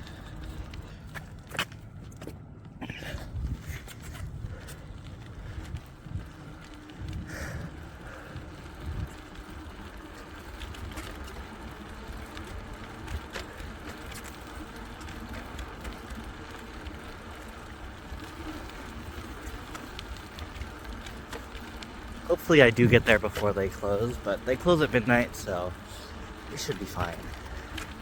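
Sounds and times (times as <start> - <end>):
bicycle tyres on road: 0.0 - 28.0
wind rumble on microphone: 2.8 - 10.0
small clicks and rattles: 3.7 - 28.0.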